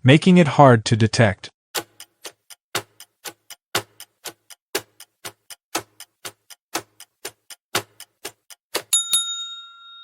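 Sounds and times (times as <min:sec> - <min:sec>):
clock ticking: 0:01.8 - 0:08.9.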